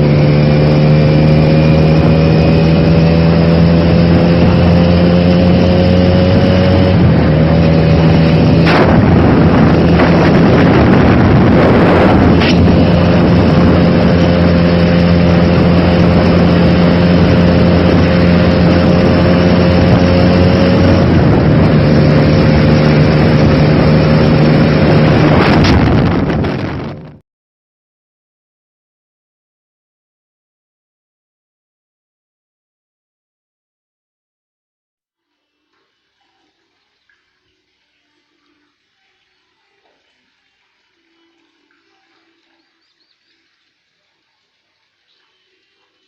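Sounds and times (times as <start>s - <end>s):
motor engine running: 0.0s - 27.2s.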